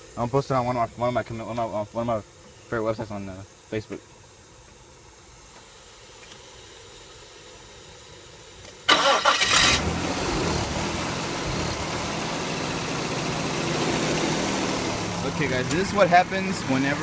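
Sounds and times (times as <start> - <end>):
starter motor cranking: 8.9 - 10.0
car engine idling: 8.9 - 17.0.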